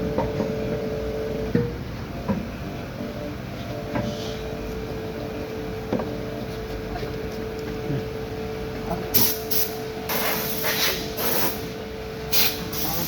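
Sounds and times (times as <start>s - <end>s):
steady tonal hum: 0.0s - 13.0s
compressed air blasts: 9.1s - 11.7s, 12.3s - 13.0s.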